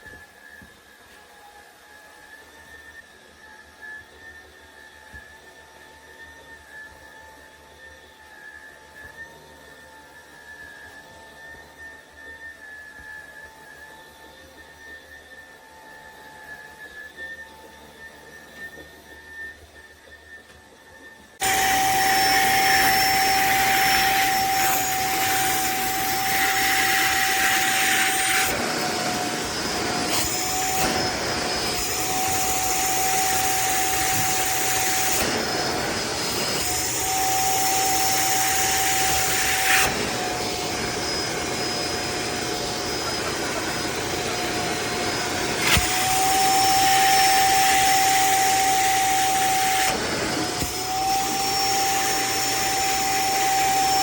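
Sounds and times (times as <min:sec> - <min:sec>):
spin mop motors whining: 0:09.9 - 0:54.0.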